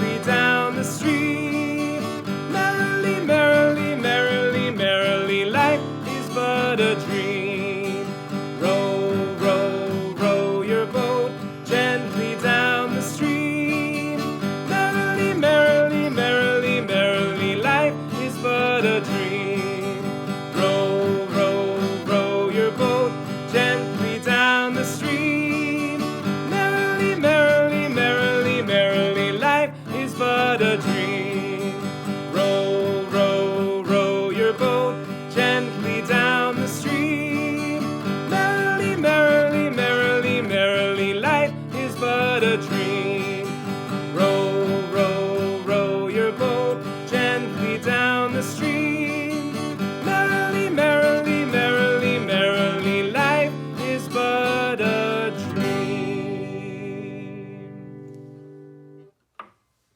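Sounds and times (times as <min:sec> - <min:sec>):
acoustic guitar music: 0:00.0 - 0:59.9.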